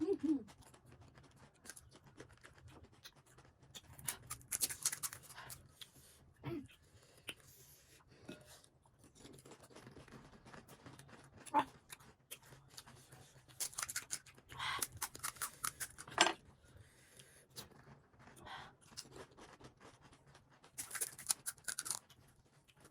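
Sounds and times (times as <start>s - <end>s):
crisp snack crunching: 0.7s - 5.5s, 9.2s - 16.1s, 17.6s - 22.9s.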